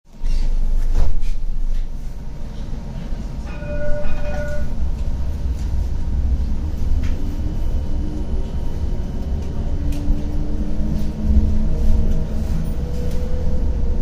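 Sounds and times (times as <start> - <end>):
tram rumbling: 0.1 - 14.0
two-note signal tone: 3.5 - 4.8.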